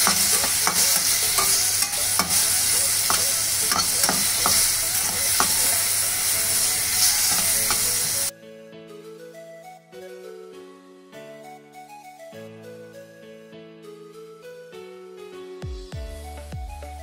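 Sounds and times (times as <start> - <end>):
food sizzling in a pan: 0.0 - 8.3
metal spatula scraping a pan: 0.0 - 8.3
soft background music: 0.0 - 17.0.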